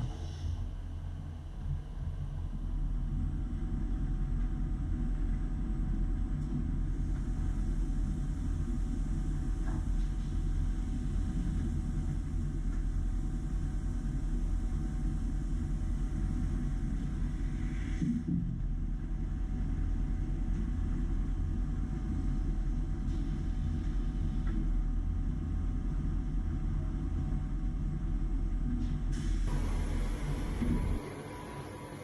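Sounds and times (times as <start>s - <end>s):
faint machine whine: 0.0s - 32.0s
machine hum and rumble: 0.0s - 32.0s.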